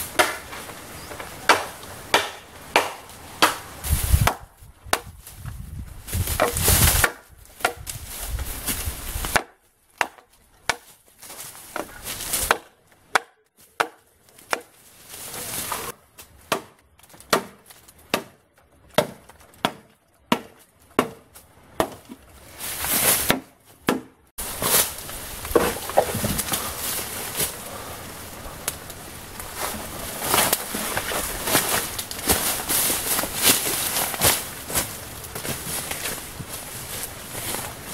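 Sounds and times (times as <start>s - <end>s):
chopping into bamboo: 0.1s - 5.2s, 6.4s - 8.0s, 9.2s - 10.9s, 11.7s - 14.8s, 16.4s - 22.2s, 23.2s - 24.2s.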